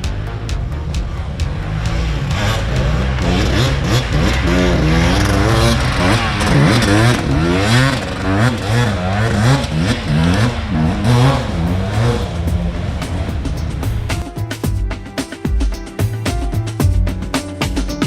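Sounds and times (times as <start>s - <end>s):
dirt bike engines revving: 0.0s - 14.2s.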